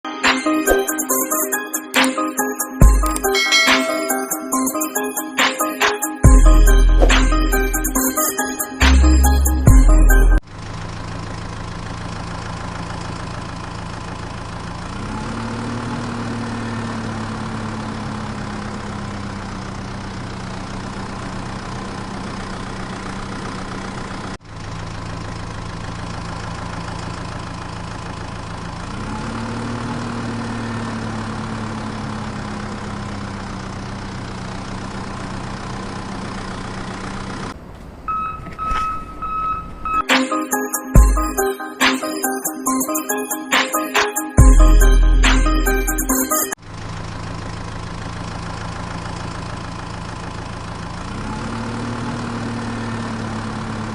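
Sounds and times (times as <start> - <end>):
short high electronic tone: 0.1 - 10.4, 38.1 - 46.6
tractor engine idling and revving: 6.2 - 40.1, 44.4 - 53.9.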